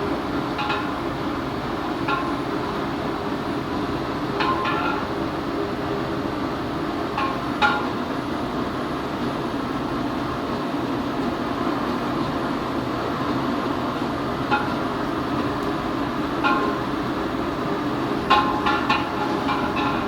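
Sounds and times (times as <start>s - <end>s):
pot rumbling on burner: 14.5s - 20.0s.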